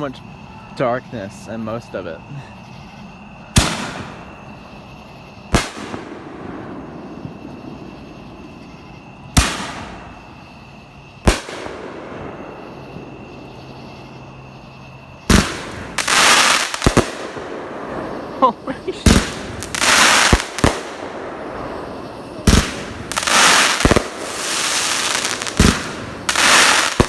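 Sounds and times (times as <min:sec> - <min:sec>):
firework bangs: 0:03.5 - 0:14.1, 0:15.2 - 0:27.0
quick firework pops: 0:03.6 - 0:04.2, 0:09.4 - 0:10.0, 0:25.2 - 0:27.0
firework crackling burst: 0:03.6 - 0:04.4, 0:05.5 - 0:08.5, 0:09.3 - 0:10.5, 0:15.3 - 0:27.0.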